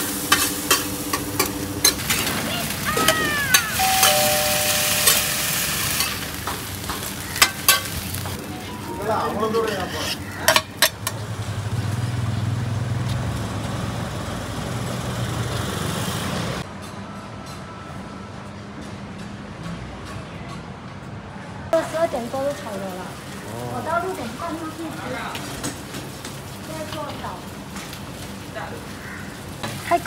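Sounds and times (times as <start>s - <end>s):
street traffic rumble: 0.0s - 30.0s
omelette sizzling on iron pan: 3.4s - 8.4s
metal spatula scraping pan: 9.4s - 10.9s.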